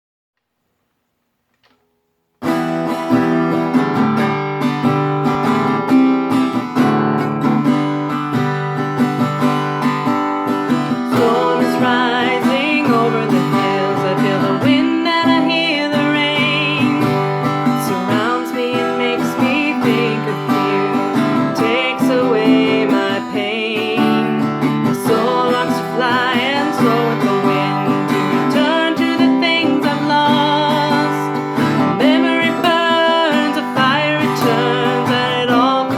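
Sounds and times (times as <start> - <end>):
acoustic guitar accompaniment: 1.5 - 35.9
person singing wavering melody: 10.9 - 35.9.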